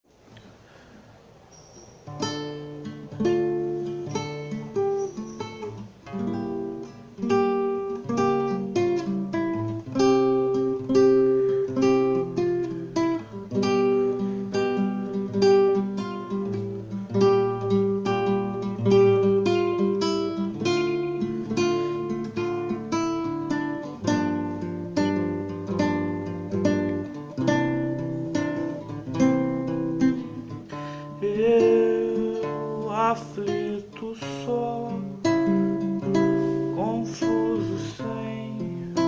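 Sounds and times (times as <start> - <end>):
acoustic guitar strumming: 1.6 - 39.0.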